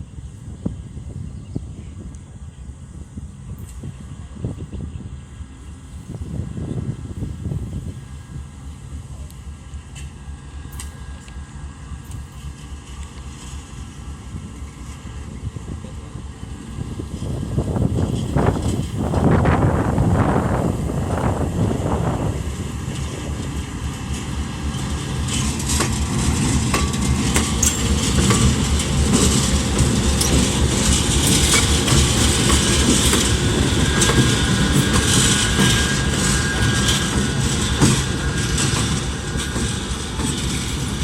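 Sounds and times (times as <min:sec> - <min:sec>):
freight train wheels rumbling: 0:00.0 - 0:41.0
wheels clicking over rail joints: 0:16.7 - 0:41.0.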